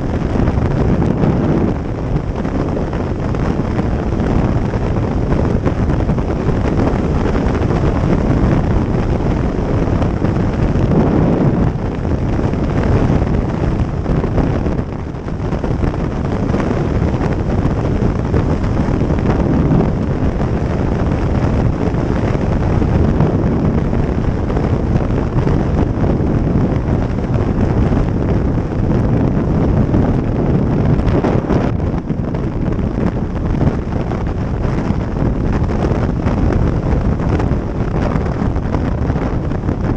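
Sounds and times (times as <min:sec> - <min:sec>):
road noise: 0:00.0 - 0:39.9
wind buffeting microphone: 0:00.0 - 0:39.9.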